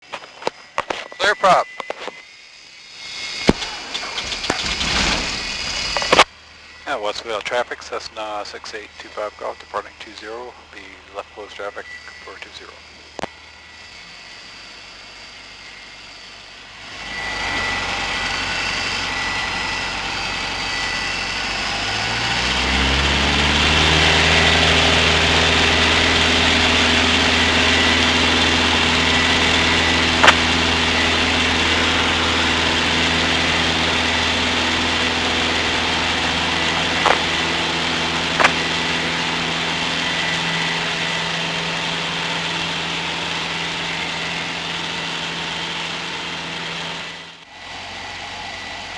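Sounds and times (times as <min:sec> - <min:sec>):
airplane engine at full power: 0:00.0 - 0:48.9
sharp clicks: 0:30.2 - 0:30.4, 0:36.7 - 0:37.3, 0:38.4 - 0:38.6.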